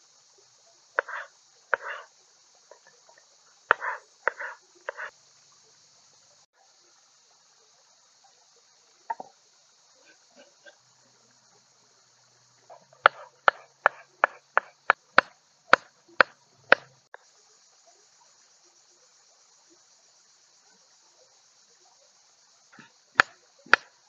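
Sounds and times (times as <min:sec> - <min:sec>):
crickets chirping: 0:00.0 - 0:24.0
sharp knocks: 0:13.0 - 0:16.9.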